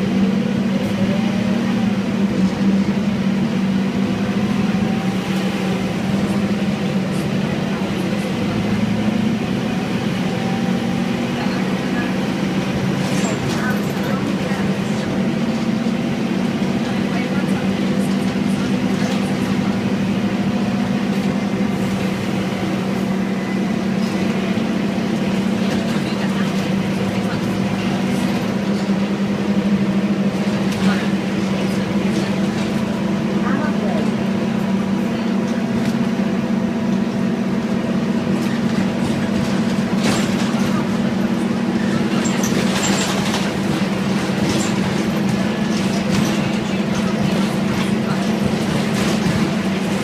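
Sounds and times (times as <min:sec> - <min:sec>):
bus engine humming: 0:00.0 - 0:50.0.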